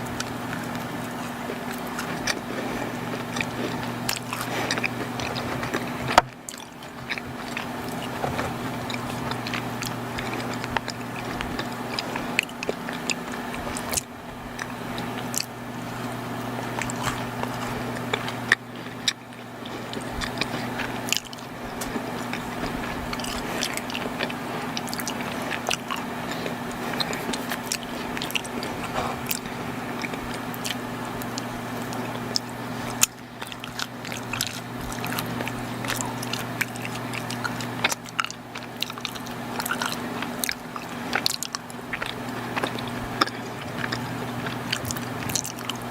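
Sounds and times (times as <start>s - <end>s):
biting and chewing: 0.0s - 45.9s
steady low hum: 0.0s - 45.9s.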